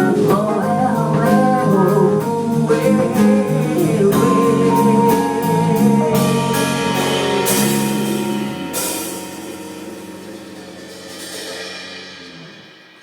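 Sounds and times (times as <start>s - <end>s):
band closing chord: 2.8s - 13.0s
cymbal crash: 6.2s - 13.0s.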